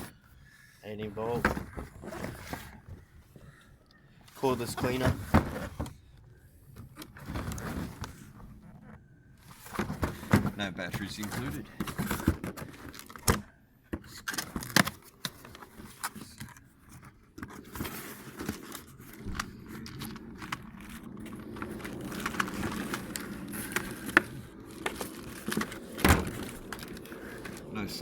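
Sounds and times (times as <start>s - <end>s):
packaging crinkling and rustling: 6.9s - 28.0s
plastic parts clicking and knocking: 9.7s - 27.7s.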